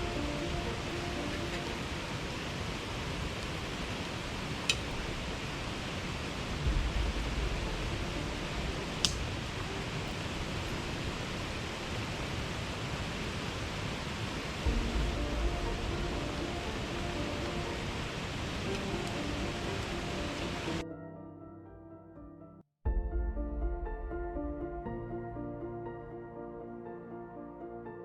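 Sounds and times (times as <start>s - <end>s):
rain hissing: 0.0s - 20.8s
low rumble: 6.4s - 11.4s, 14.7s - 18.3s.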